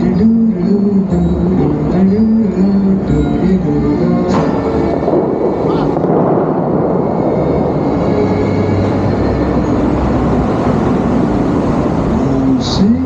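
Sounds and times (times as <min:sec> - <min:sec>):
fountain water jets roaring: 0:04.6 - 0:13.0.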